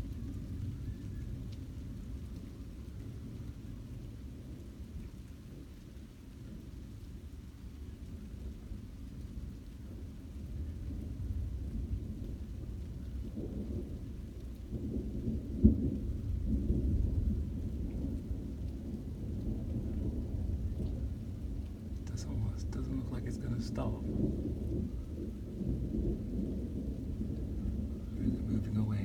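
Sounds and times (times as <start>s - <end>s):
thunder rumbling: 10.6s - 29.0s.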